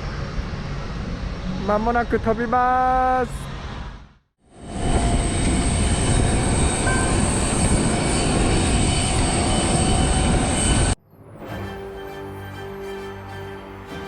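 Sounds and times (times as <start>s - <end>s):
jet engines rumbling at takeoff: 0.0s - 11.0s.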